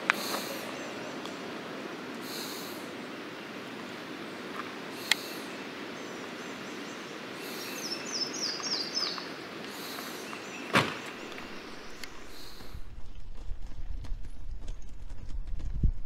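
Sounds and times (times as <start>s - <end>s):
songbird chirping: 0.0s - 15.2s
woodland ambience: 0.0s - 15.8s
thump: 10.7s - 11.0s.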